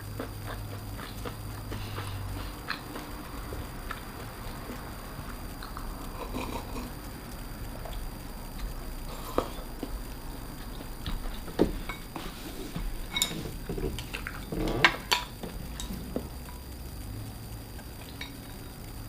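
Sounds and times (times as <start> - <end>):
utensils clinking against dishes: 11.7 - 16.1, 18.0 - 18.6.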